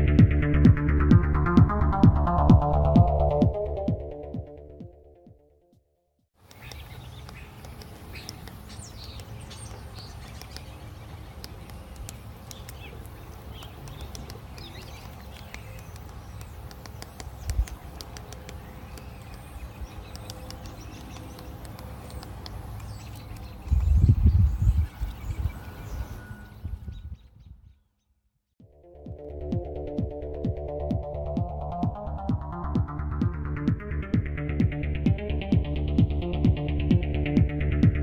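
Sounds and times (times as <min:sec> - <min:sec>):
faint clicks: 0:06.4 - 0:24.0
bird chirps: 0:06.4 - 0:28.2.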